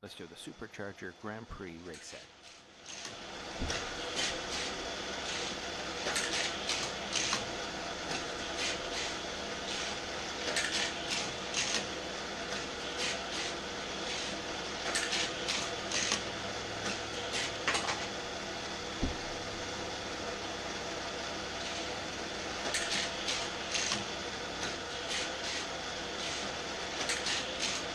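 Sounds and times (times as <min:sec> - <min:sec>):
toy booster motor whirring: 0:14.9 - 0:16.2
toy cars zipping and clicking: 0:14.9 - 0:16.2
low thump: 0:19.0 - 0:19.3.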